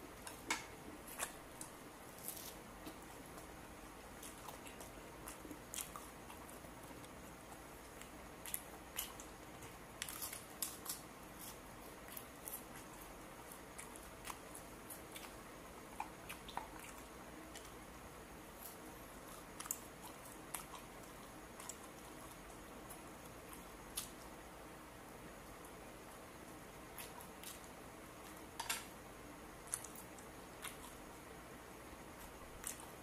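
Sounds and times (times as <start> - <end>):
chewing and lip-smacking: 4.2 - 17.8, 18.6 - 24.2, 29.6 - 31.0.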